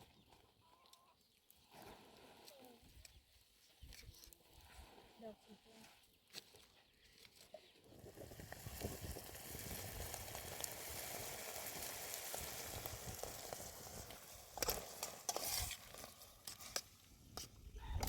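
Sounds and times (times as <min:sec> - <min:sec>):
food sizzling in a pan: 0:07.9 - 0:16.8.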